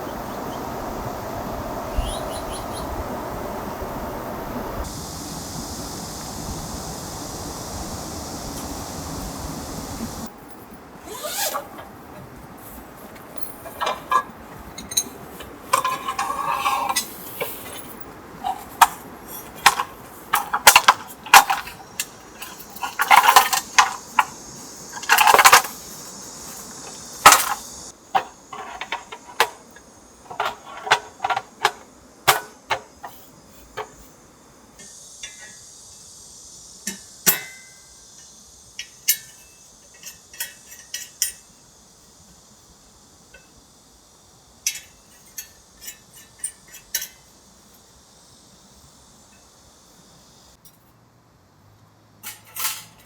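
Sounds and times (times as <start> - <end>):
dishes and utensils clinking: 13.4 - 25.8.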